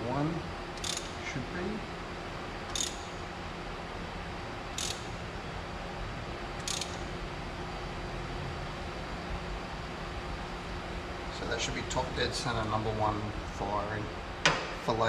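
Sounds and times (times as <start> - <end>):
steady hum: 0.0 - 15.0
ratchet wrench clicking: 0.8 - 1.2, 2.7 - 3.1, 4.8 - 5.1, 6.6 - 7.1.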